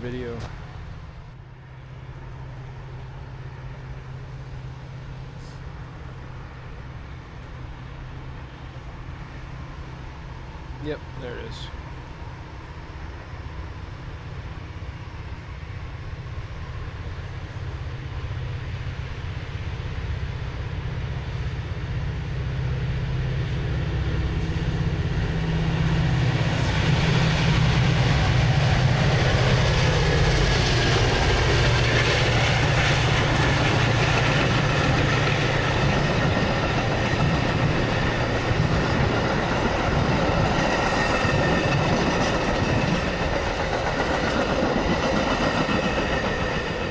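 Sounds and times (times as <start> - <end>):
train wheels on rails: 0.0 - 1.4, 22.7 - 46.9
diesel train engine hum: 0.0 - 46.9.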